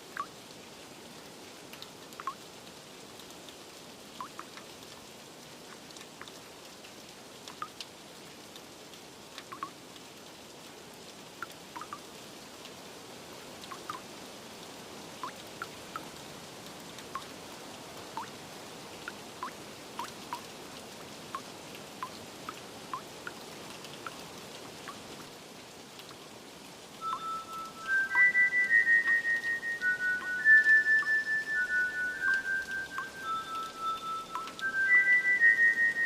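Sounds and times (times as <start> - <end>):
steady rain hiss: 0.0 - 36.0
water drips plinking: 0.1 - 0.4, 1.7 - 2.4, 4.2 - 4.9, 5.7 - 7.9, 9.4 - 9.8, 11.4 - 12.1, 13.6 - 14.1, 15.2 - 16.2, 17.0 - 17.4, 18.1 - 18.4, 19.0 - 25.2, 26.9 - 36.0.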